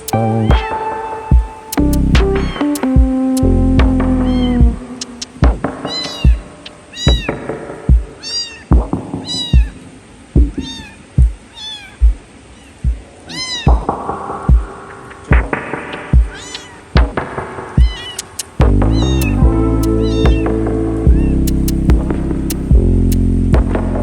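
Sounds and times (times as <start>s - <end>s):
background music with bass beat: 0.0s - 6.4s, 18.6s - 24.0s
kitten meowing: 4.2s - 5.1s, 5.9s - 7.4s, 8.2s - 9.8s, 10.5s - 13.9s, 16.3s - 16.8s, 17.8s - 18.3s, 18.9s - 21.7s.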